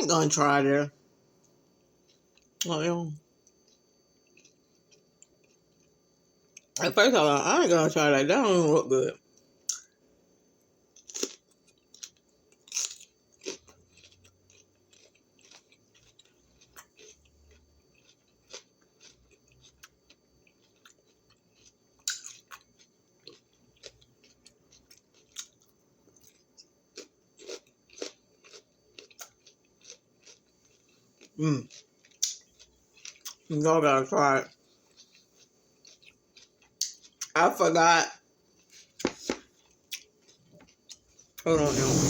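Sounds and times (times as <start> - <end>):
person crunching bell pepper: 3.6 - 4.6, 11.0 - 33.5, 34.8 - 37.4.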